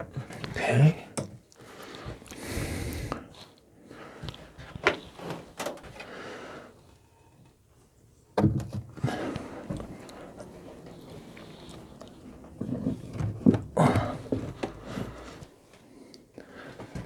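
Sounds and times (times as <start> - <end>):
wooden box scraping: 9.2 - 15.5.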